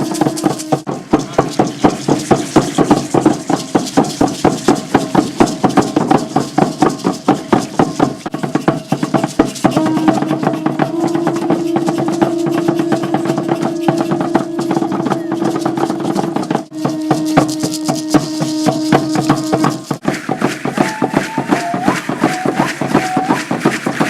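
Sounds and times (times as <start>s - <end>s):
rattles shaking: 0.0s - 24.0s.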